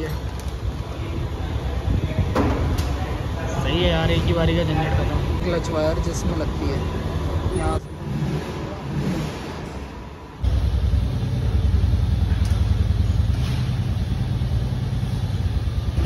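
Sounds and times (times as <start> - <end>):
motorcycle engine running: 10.4 - 16.0.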